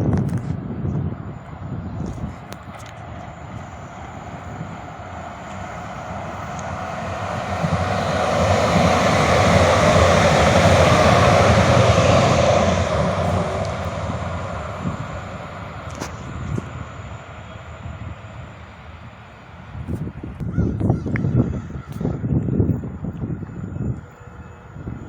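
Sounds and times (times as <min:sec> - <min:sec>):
vehicle passing by: 0:03.0 - 0:18.9.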